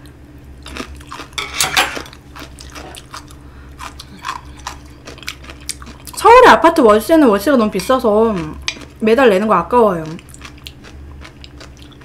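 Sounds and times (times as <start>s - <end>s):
person chewing food: 0.6s - 6.2s, 7.8s - 9.0s, 10.0s - 12.0s.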